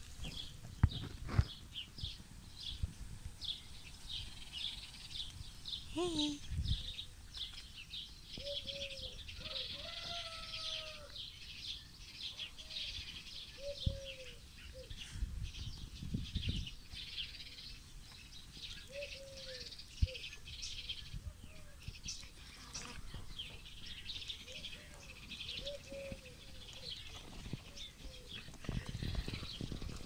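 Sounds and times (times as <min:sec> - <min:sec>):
birds chirping and trilling: 0:00.2 - 0:30.0
lower falling bird calls: 0:15.6 - 0:30.0.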